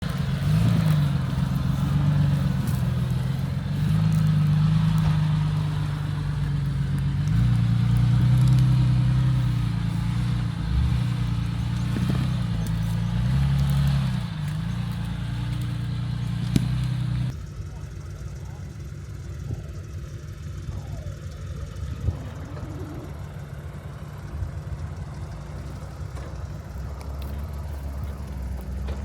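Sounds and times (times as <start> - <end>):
knocks and crackles: 0.0 - 17.4
off-road vehicle engine: 0.0 - 29.0.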